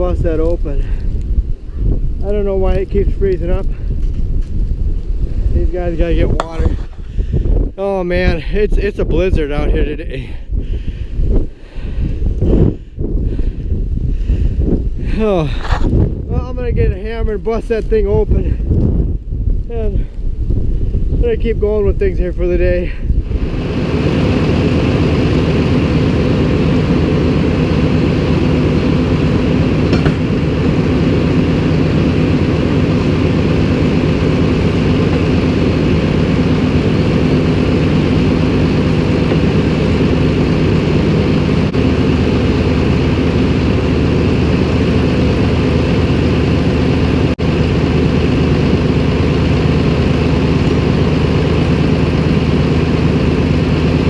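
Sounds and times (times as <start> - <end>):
tractor engine running: 0.0 - 17.9, 23.1 - 54.0.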